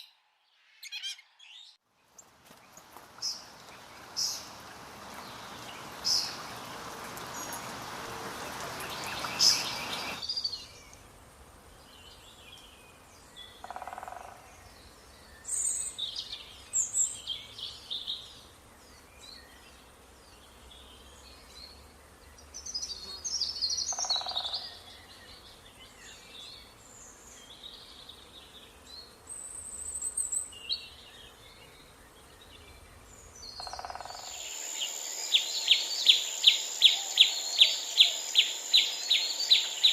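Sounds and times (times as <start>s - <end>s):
birds chirping: 0.0s - 11.0s, 29.8s - 39.9s
steady hiss: 2.3s - 13.3s, 34.2s - 39.9s.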